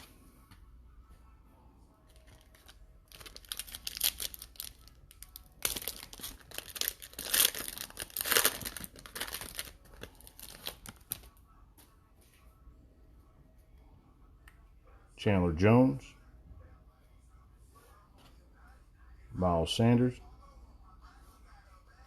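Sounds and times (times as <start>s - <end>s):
foil wrapper tearing and crinkling: 2.5s - 11.2s.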